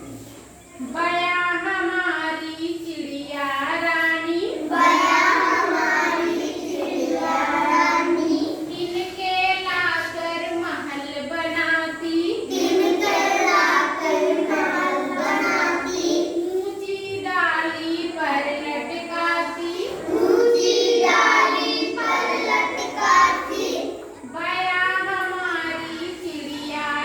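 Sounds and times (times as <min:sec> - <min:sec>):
child singing: 0:04.6 - 0:09.0, 0:12.4 - 0:16.6, 0:19.8 - 0:24.0.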